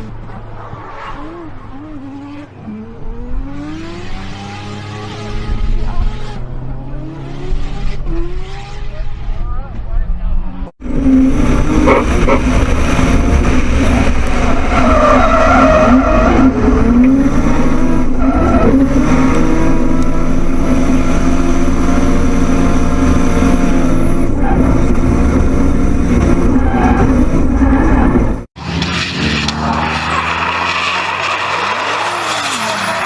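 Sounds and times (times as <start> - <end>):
tyres screeching: 28.6 - 33.0.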